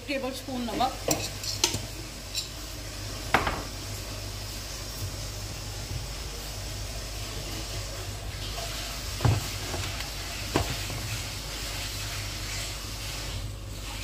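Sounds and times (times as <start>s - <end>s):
food sizzling in oil: 0.0s - 14.0s.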